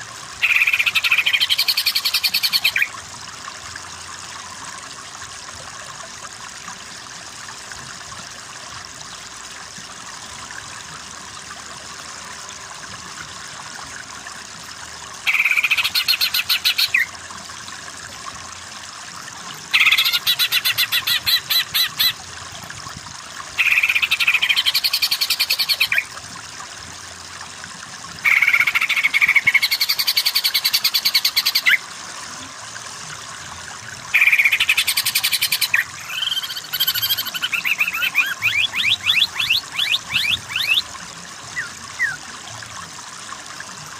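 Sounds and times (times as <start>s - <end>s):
bird singing fast chirps: 34.2s - 40.8s.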